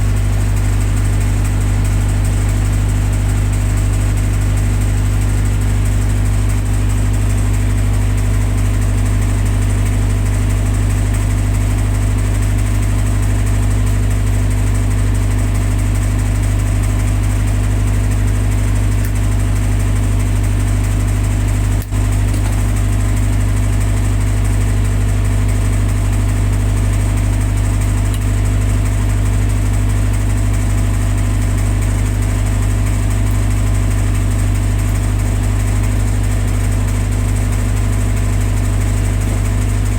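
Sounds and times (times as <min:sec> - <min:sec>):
generator engine running: 0:00.0 - 0:39.9.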